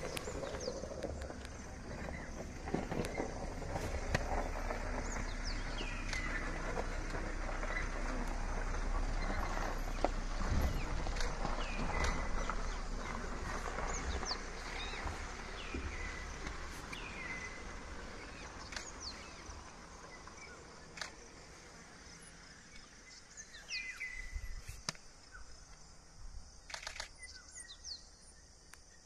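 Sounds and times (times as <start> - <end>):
low rumble: 0.0 - 22.6.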